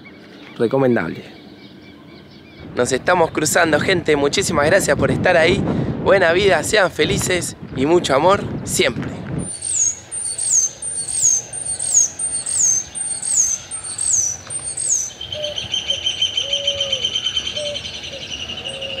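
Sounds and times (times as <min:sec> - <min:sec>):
bird trilling: 0:09.4 - 0:19.0
low bird notes: 0:09.4 - 0:19.0.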